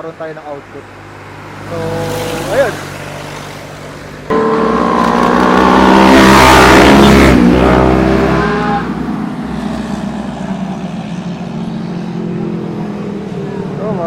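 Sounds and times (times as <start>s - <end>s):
motorcycle accelerating past: 1.7s - 8.9s.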